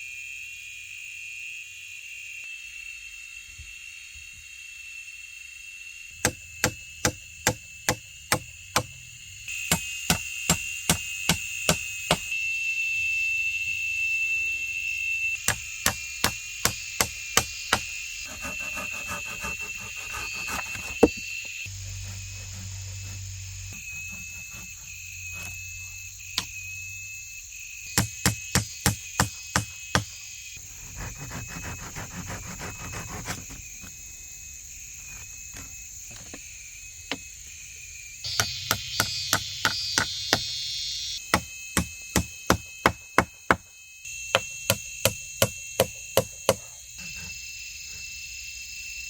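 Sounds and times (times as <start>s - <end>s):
insects chirring: 0.0s - 49.0s
knife chopping wood: 6.2s - 9.0s, 9.6s - 12.3s, 15.4s - 21.3s, 27.9s - 30.1s, 30.8s - 33.9s, 38.3s - 40.5s, 41.3s - 43.6s, 44.4s - 47.3s.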